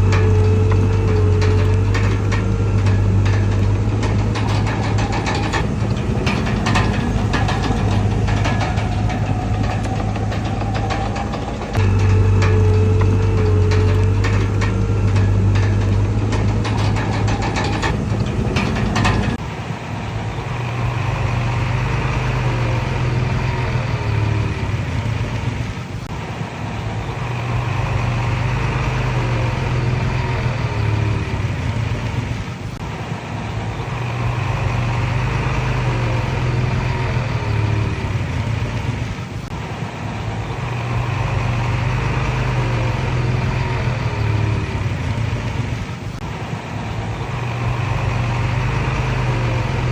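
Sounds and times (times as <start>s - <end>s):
rattling clicks: 0.0s - 19.4s
short squeals: 0.0s - 19.4s
bulldozer diesel engine working: 0.0s - 49.9s.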